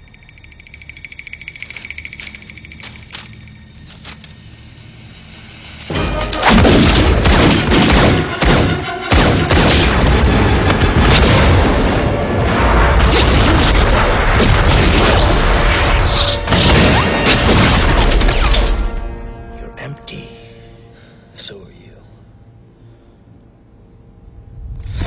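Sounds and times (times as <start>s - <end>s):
booming orchestral score: 5.9s - 20.9s.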